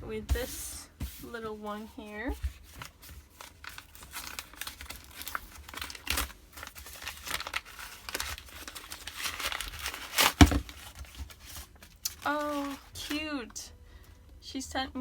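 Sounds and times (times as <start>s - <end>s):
wrapping paper tearing and crinkling: 2.6s - 13.2s.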